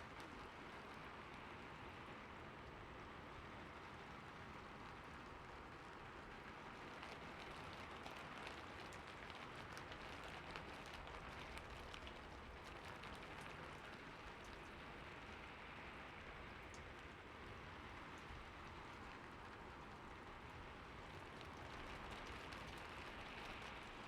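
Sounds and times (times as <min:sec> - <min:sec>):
quiet rain hiss: 0:00.0 - 0:24.0
rain drop ticks: 0:05.2 - 0:17.2, 0:20.7 - 0:24.0.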